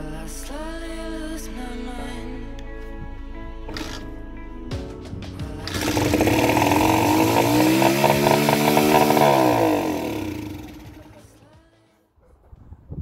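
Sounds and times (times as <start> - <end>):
motorcycle engine revving: 5.6 - 11.4.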